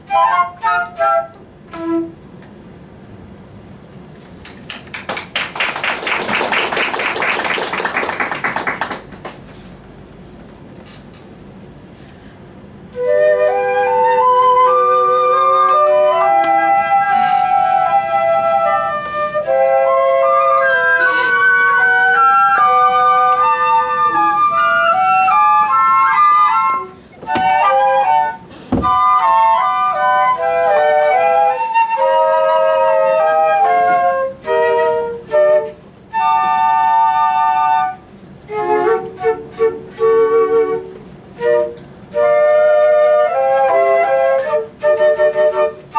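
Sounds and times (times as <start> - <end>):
flute melody: 0.0 - 2.2, 12.9 - 45.9.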